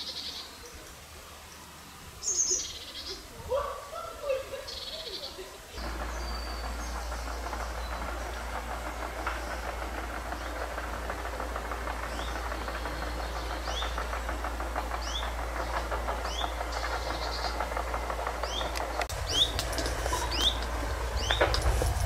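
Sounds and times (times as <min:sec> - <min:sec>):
small birds chirping: 0:00.0 - 0:22.0
low rumble: 0:05.8 - 0:22.0
steady rushing noise: 0:05.8 - 0:22.0.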